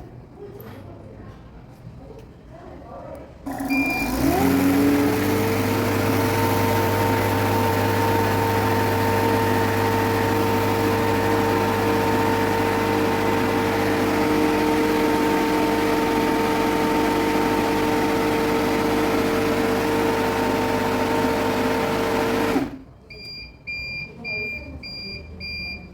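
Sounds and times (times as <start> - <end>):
machine compressor hum and whine: 5.4 - 22.9.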